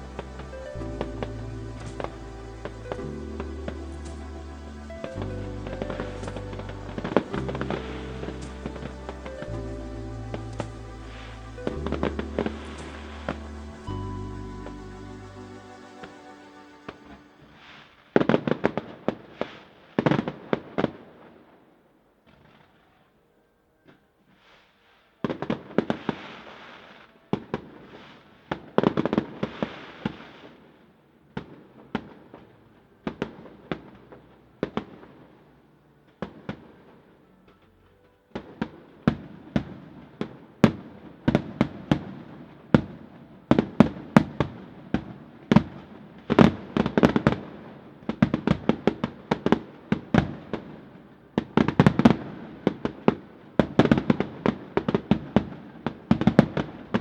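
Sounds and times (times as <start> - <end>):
fireworks crackling: 0.0 - 21.0.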